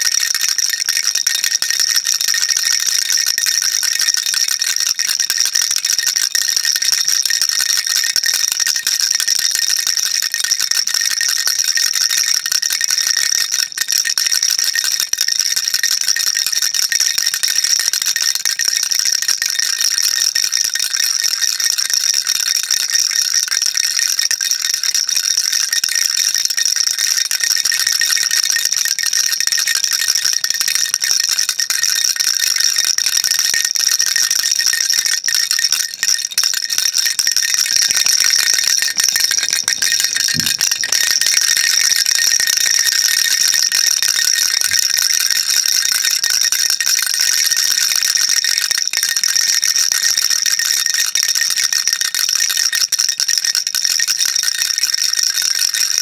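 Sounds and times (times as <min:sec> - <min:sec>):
baby rattle shaken: 0:00.0 - 0:17.5, 0:24.8 - 0:50.4.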